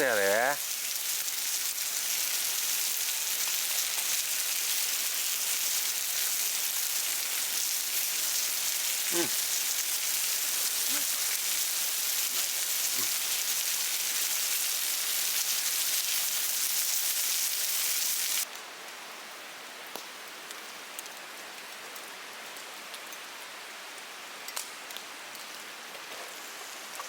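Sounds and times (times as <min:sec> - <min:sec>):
meat sizzling on a grill: 0:00.0 - 0:18.5
small crackles: 0:00.6 - 0:19.0, 0:24.5 - 0:27.0.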